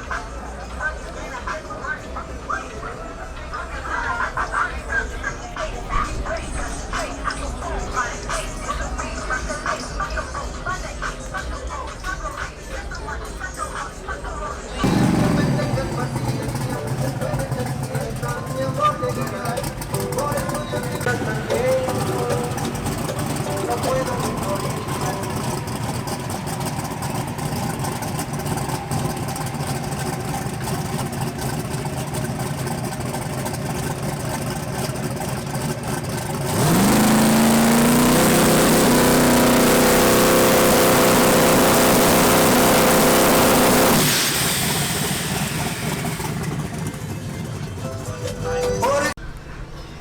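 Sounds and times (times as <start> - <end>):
car engine revving: 14.8 - 48.2.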